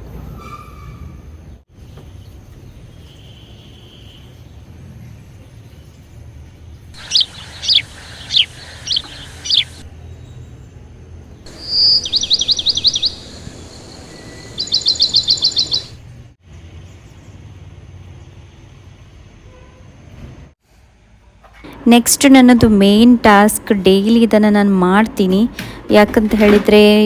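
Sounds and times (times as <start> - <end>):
birds chirping: 7.0 - 10.0, 11.4 - 16.2.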